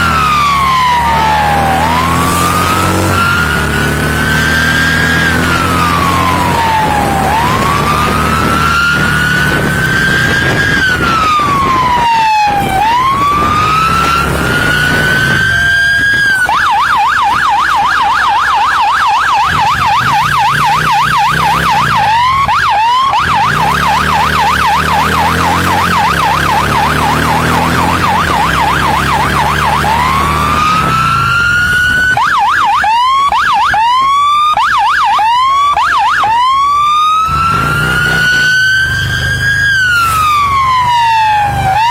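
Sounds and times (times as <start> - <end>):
police siren wailing and yelping: 0.0 - 41.9
motorcycle engine running: 18.3 - 32.4.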